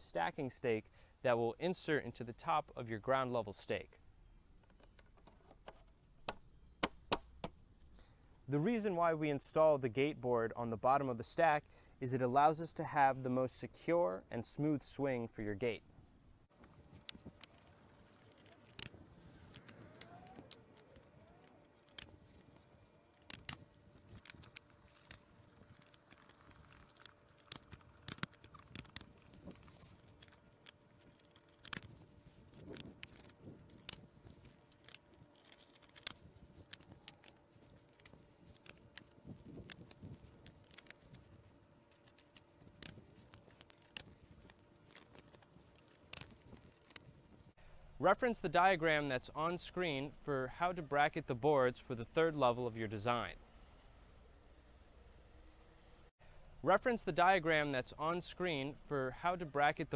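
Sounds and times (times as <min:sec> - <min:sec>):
boards and brackets clicking: 0:16.6 - 0:47.5.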